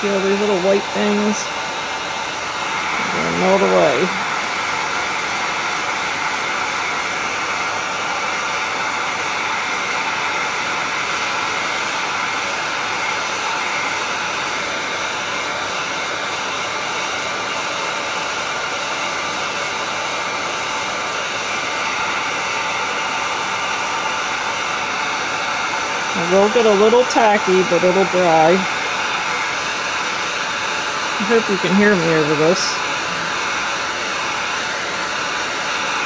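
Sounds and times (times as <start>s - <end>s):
heat gun blower rush: 0.0s - 36.0s.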